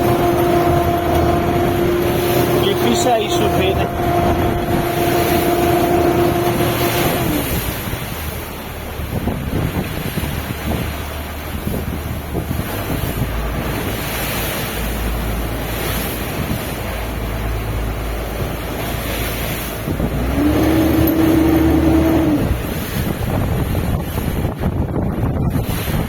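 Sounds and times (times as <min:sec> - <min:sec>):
rising whine: 0:00.0 - 0:07.7
boat engine hum: 0:00.0 - 0:26.0
wind buffeting microphone: 0:00.0 - 0:26.0.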